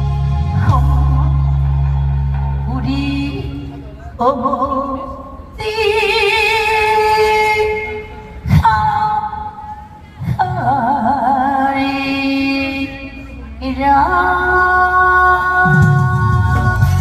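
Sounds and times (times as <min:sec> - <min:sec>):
low drum and bass beat: 0:00.0 - 0:04.0, 0:15.4 - 0:17.0
backing music: 0:00.0 - 0:11.8, 0:13.1 - 0:17.0
woman singing with vibrato: 0:00.0 - 0:17.0.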